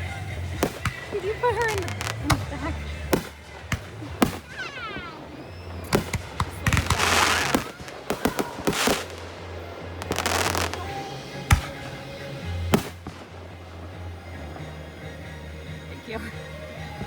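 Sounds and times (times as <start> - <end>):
firework bangs: 0.0 - 17.0
hissing crackling firework bursts: 0.0 - 17.0
firework falling whistle: 4.2 - 12.0.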